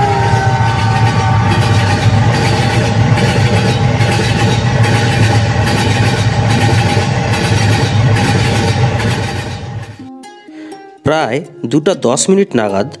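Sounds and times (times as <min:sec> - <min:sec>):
another train passing: 0:00.0 - 0:10.0
train rumbling on rails: 0:00.0 - 0:10.0.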